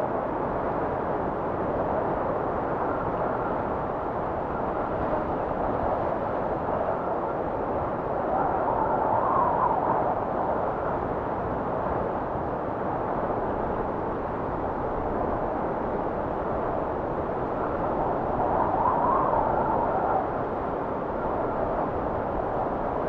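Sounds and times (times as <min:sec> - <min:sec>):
blizzard wind rushing: 0:00.0 - 0:23.0
wavering wind whistle: 0:17.5 - 0:22.0.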